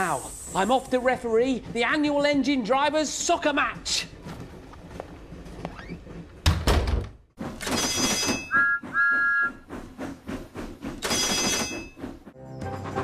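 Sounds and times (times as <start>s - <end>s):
steam hissing and chuffing: 0.0s - 4.1s, 8.5s - 12.4s
steam whistle toots: 8.5s - 9.7s.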